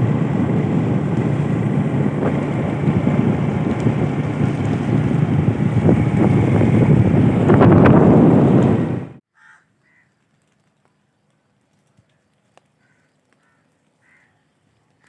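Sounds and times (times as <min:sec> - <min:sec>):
wind buffeting microphone: 0:00.0 - 0:09.2
faint crow caws: 0:09.3 - 0:10.2, 0:12.7 - 0:14.5.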